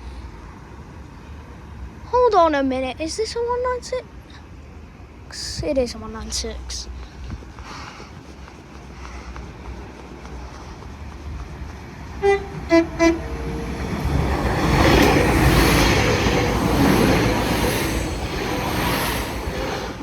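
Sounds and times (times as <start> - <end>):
train passing at speed: 6.3 - 20.0
train horn blasts: 12.2 - 13.7.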